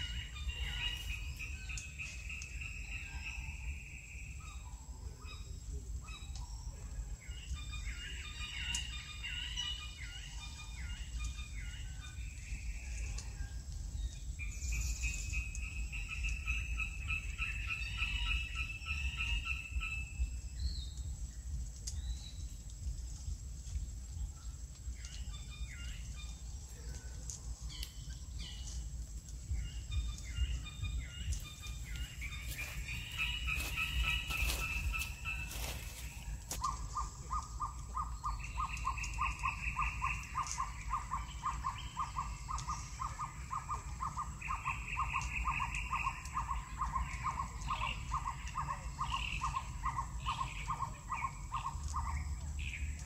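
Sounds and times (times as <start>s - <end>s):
bird trills and chirps: 0.0s - 13.2s, 25.0s - 53.0s.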